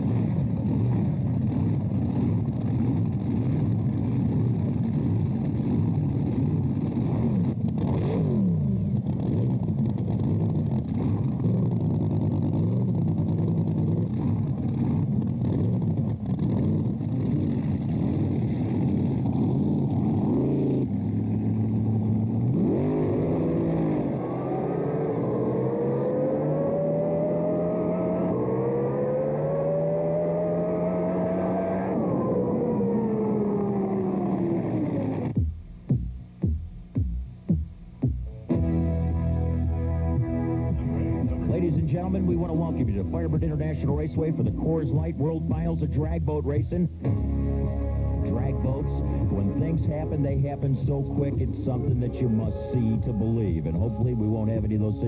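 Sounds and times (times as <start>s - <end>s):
racing boat engines revving: 0.0s - 35.4s, 38.5s - 55.0s.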